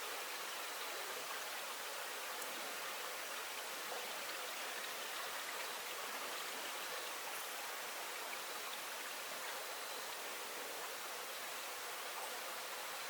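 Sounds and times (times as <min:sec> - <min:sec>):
stream water flowing: 0:00.0 - 0:13.0
faint ticks: 0:02.3 - 0:02.6.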